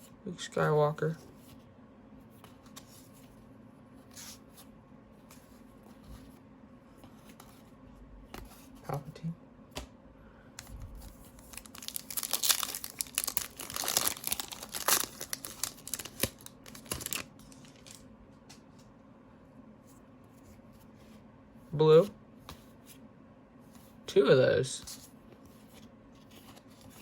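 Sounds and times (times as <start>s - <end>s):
wrapper crinkling and tearing: 11.3s - 18.0s.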